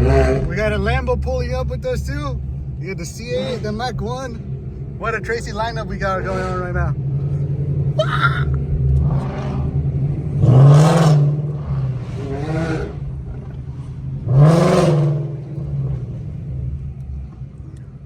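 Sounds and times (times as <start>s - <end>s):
engine revving hard: 0.0s - 0.8s, 8.7s - 13.1s, 14.2s - 16.4s
car engines idling: 0.0s - 18.0s.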